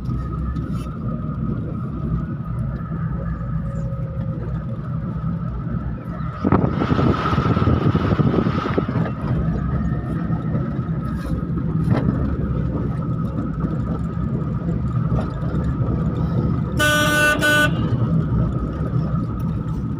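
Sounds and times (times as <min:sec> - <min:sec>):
car engine and road rumble: 0:00.0 - 0:19.9
car horn honks: 0:16.8 - 0:18.2.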